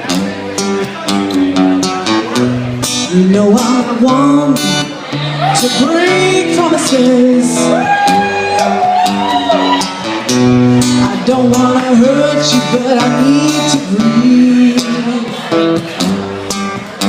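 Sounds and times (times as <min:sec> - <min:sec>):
acoustic guitar strumming: 0:00.0 - 0:17.0
person singing: 0:02.8 - 0:10.2, 0:10.8 - 0:16.7.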